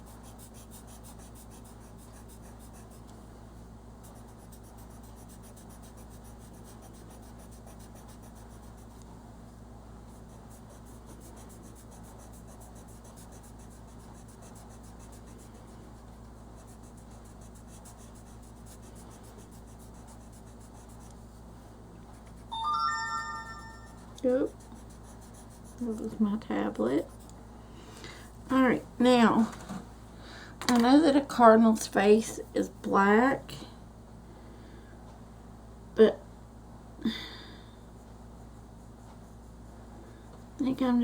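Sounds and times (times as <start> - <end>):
pencil scratching on paper: 0.0 - 3.2, 4.0 - 9.0, 10.0 - 22.6, 23.9 - 27.3.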